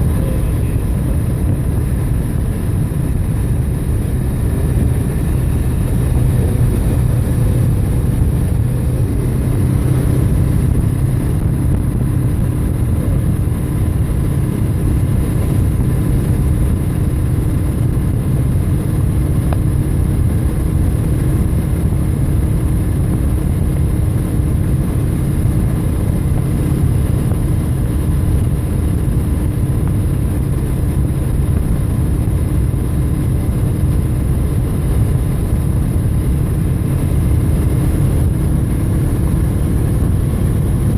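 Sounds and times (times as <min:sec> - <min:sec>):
bike engine drone: 0:00.0 - 0:40.9.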